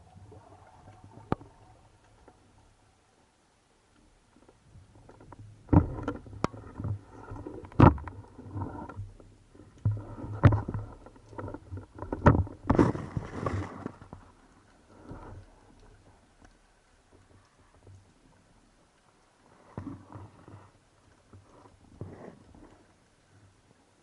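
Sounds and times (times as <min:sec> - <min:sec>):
water sloshing and splashing: 0:04.3 - 0:23.3.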